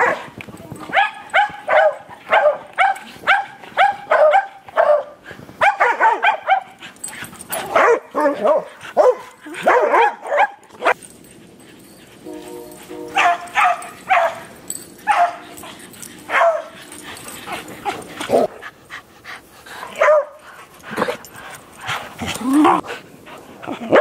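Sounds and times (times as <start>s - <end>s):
dog barking: 0.0s - 0.3s, 0.9s - 6.7s, 7.6s - 11.0s, 13.1s - 14.5s, 15.1s - 15.5s, 16.3s - 16.8s, 20.0s - 20.4s.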